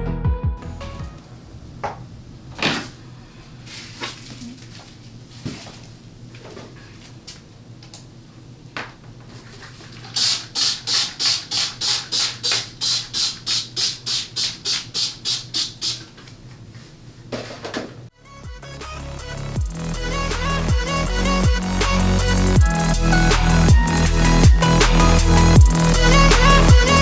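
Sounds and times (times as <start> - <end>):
rhythmic scrubbing strokes: 18.5 - 27.0.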